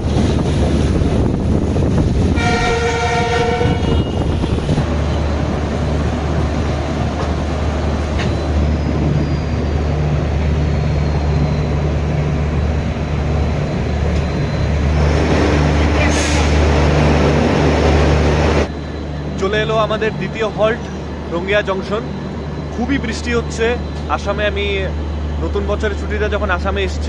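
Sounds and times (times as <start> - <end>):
train rumbling at speed: 0.0 - 27.0
train horn: 2.4 - 4.5.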